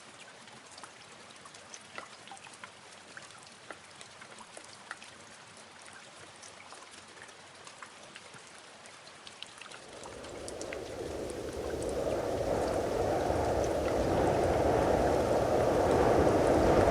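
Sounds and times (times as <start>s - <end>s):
rain patter: 0.5s - 16.9s
water rushing: 9.7s - 16.9s.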